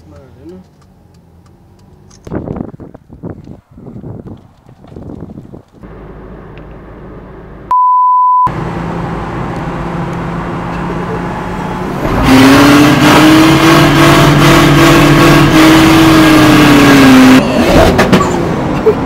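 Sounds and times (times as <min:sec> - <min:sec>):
censor bleep: 0:07.7 - 0:08.5
car engine accelerating: 0:08.5 - 0:19.0.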